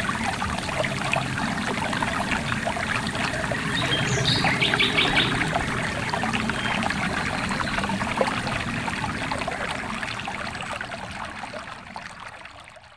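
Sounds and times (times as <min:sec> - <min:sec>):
stream water flowing and splashing: 0:00.0 - 0:12.9.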